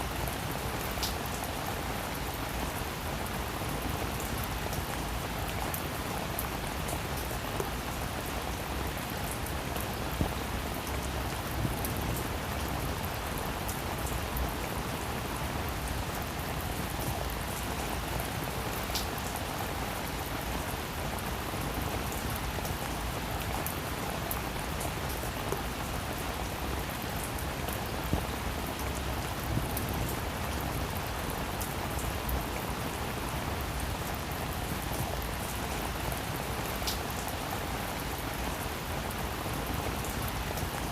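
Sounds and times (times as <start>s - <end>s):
rain on a roof: 0.0s - 40.9s
raindrop ticks: 18.9s - 19.4s, 36.8s - 37.3s.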